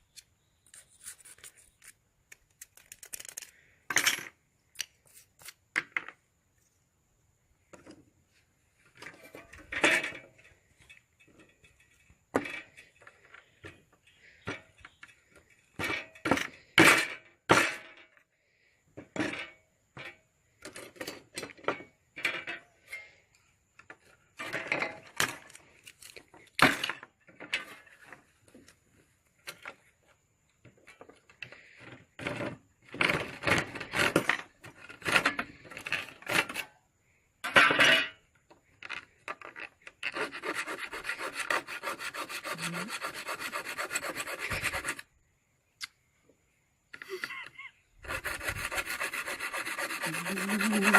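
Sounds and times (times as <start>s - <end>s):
hand tool rasping: 40.0s - 45.0s, 48.0s - 50.9s.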